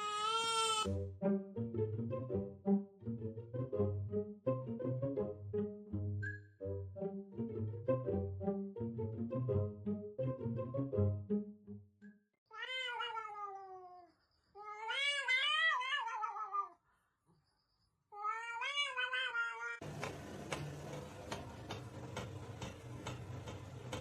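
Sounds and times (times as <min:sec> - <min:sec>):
cat meowing: 0:00.0 - 0:00.9, 0:12.5 - 0:16.8, 0:18.2 - 0:19.8.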